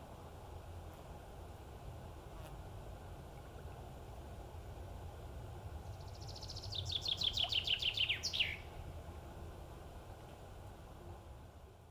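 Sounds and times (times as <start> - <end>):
bird singing: 5.9 - 8.7.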